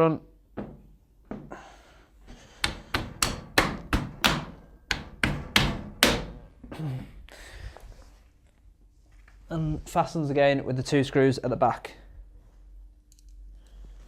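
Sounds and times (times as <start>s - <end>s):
sharp knocks on washing machine lid: 2.7s - 6.4s.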